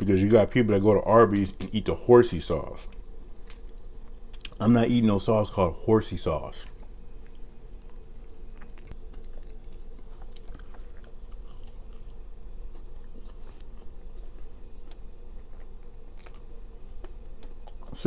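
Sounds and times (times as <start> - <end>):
steady low hum: 0.0 - 18.0
person chewing food: 6.6 - 18.0.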